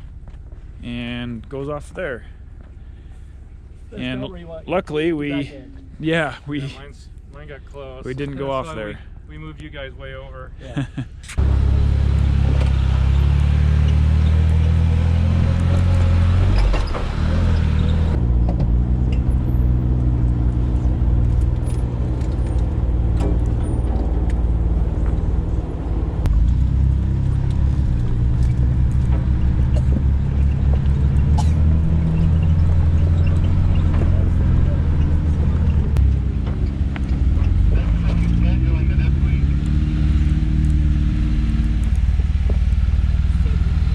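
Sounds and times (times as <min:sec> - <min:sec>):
engine running at low speed: 0:10.4 - 0:43.9
knocks and rattles: 0:21.0 - 0:25.5, 0:26.3 - 0:38.4.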